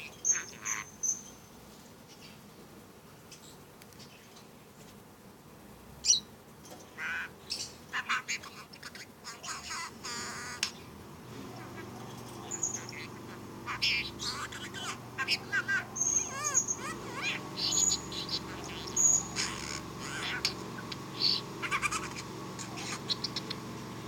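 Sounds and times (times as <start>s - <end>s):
budgerigar chattering and warbling: 0.0s - 1.2s, 6.9s - 24.0s.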